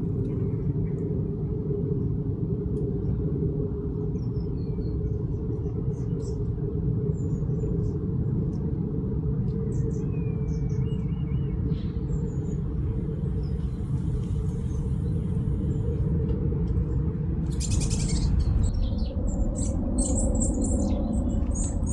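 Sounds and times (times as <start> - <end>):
steady low rumble: 12.0 - 21.9
small birds chirping: 17.4 - 21.9.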